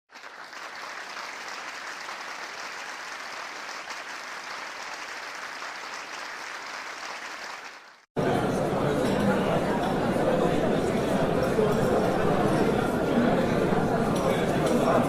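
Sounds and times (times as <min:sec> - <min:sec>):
crowd applauding: 0:00.1 - 0:08.1.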